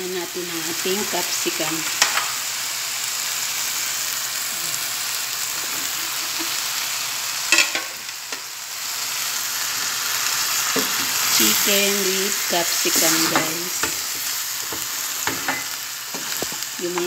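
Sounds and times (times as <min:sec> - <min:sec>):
chicken sizzling in a pan: 0:00.0 - 0:17.0.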